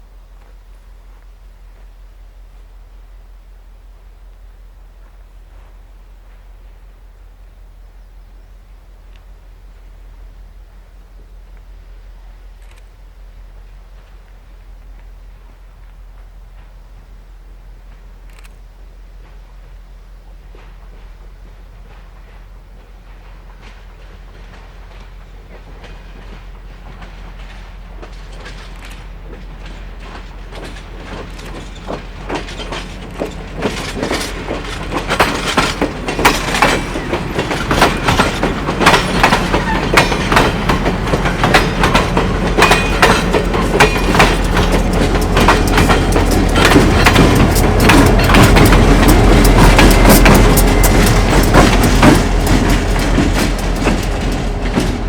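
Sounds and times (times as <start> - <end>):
diesel locomotive engine rumble: 0.0 - 55.0
wheels clicking over rails: 25.7 - 55.0.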